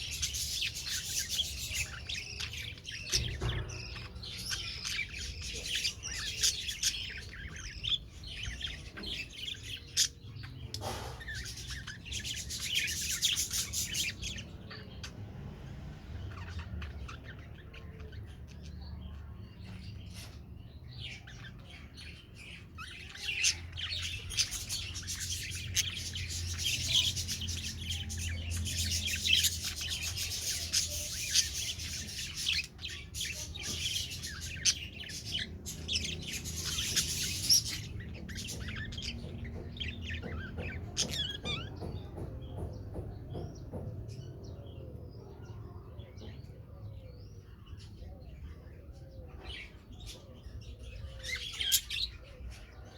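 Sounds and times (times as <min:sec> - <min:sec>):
budgerigars chirping and chattering: 0:00.0 - 0:52.9.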